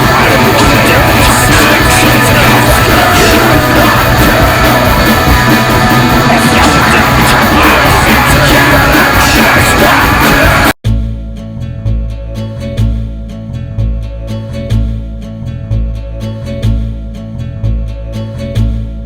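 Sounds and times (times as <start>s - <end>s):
shouted vocals: 0.0s - 10.8s
distorted heavy rock music: 0.0s - 19.0s.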